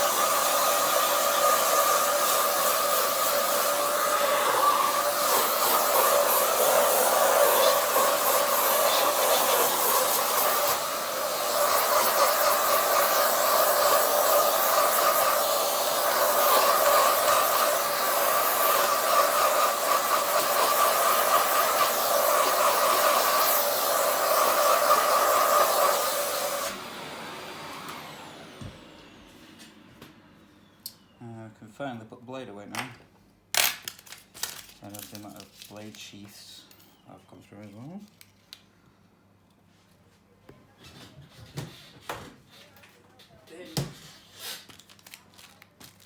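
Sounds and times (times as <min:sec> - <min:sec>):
electric blower whooshing and humming: 0:00.0 - 0:30.8.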